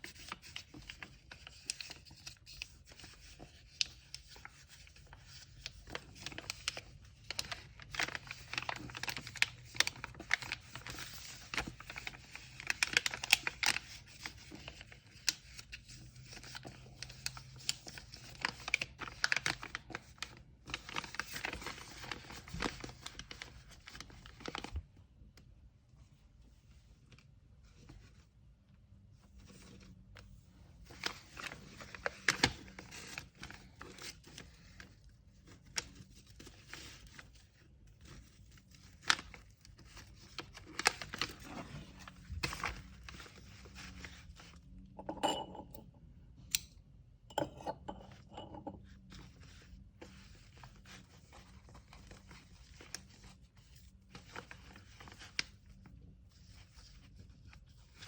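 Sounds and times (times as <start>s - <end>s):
paper rustling and tearing: 5.8s - 15.8s, 38.0s - 44.5s.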